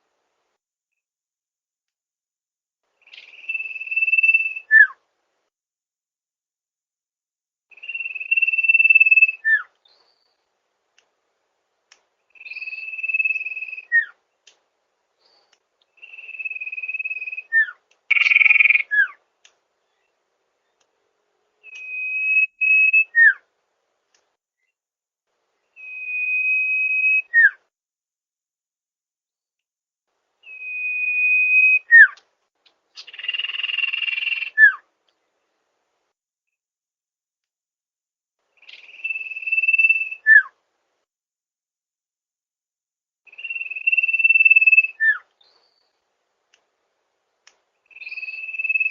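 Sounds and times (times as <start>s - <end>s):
bird whistle call: 3.1s - 5.0s, 7.7s - 9.7s, 12.4s - 14.2s, 21.6s - 23.4s, 25.8s - 27.6s, 30.4s - 32.2s, 33.0s - 34.8s, 38.6s - 40.5s, 43.3s - 45.2s, 47.9s - 48.9s.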